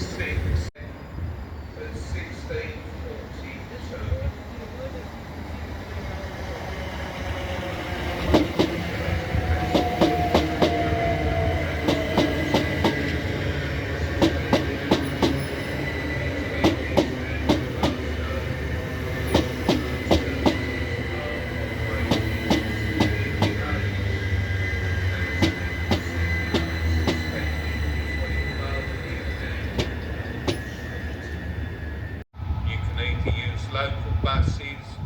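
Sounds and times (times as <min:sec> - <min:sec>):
low train rumble: 0:00.0 - 0:35.0
train wheels clicking over rail joints: 0:08.2 - 0:13.3, 0:14.0 - 0:15.9, 0:16.5 - 0:18.4, 0:19.2 - 0:20.8, 0:21.9 - 0:23.8, 0:25.2 - 0:27.4, 0:29.6 - 0:30.9.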